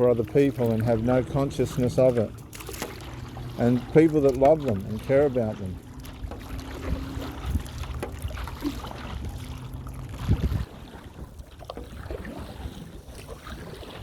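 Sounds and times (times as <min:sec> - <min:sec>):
wind buffeting microphone: 0:05.9 - 0:14.0.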